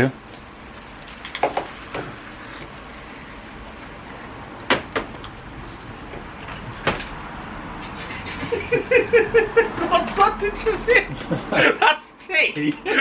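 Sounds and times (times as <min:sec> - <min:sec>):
sharp knocks: 0:04.7 - 0:05.2, 0:06.8 - 0:07.2.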